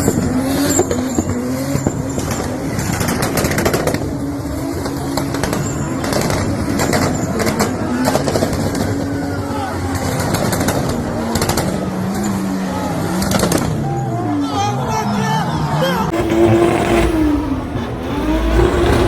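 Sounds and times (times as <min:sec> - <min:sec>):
car engine revving high: 0:16.1 - 0:19.0.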